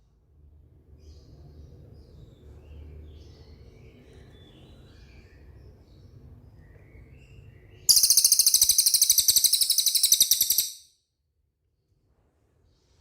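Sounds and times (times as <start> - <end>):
faint bird chirps: 6.5 - 10.9
bird singing high-pitched trill: 7.9 - 10.9.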